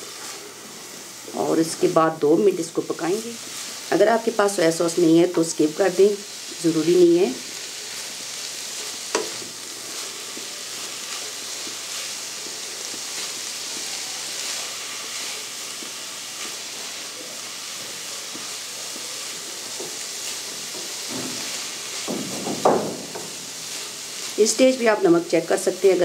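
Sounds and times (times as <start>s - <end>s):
food sizzling in a frying pan: 0.0s - 26.0s
spatula scraping a pan: 8.0s - 22.1s
spatula knocking: 20.7s - 23.5s.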